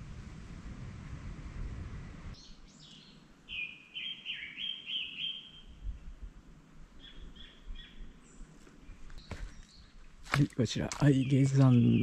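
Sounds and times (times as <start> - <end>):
low rumbling noise: 0.0 - 2.4
songbird chirping: 2.3 - 6.3, 6.9 - 12.0.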